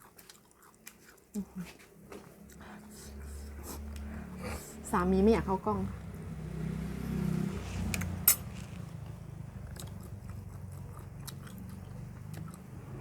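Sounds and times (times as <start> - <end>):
person chewing crunchy food: 0.0 - 3.9, 7.8 - 13.0.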